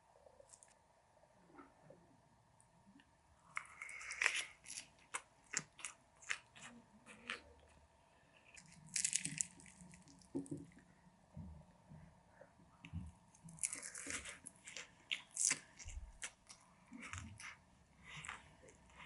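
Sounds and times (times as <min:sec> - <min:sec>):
crunchy bites and chewing: 0:03.5 - 0:07.7, 0:08.4 - 0:10.7, 0:13.3 - 0:19.0.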